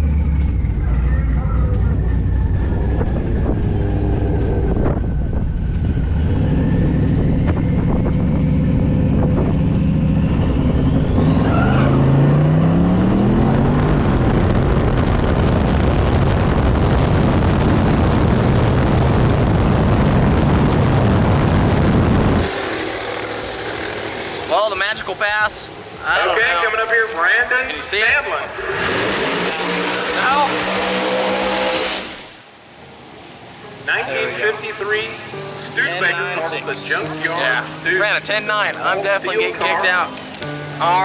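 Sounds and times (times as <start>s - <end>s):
race car engine accelerating: 0.0s - 25.2s, 28.3s - 32.4s.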